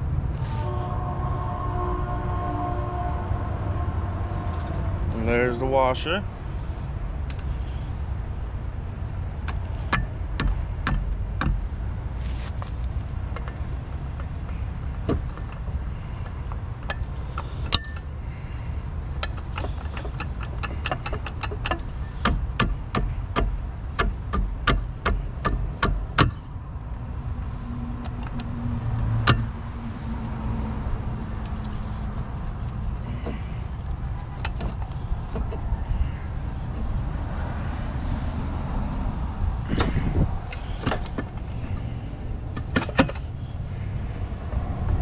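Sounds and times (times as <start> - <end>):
steady low rumble: 0.0 - 45.0
hand tools knocking on metal: 19.2 - 26.4.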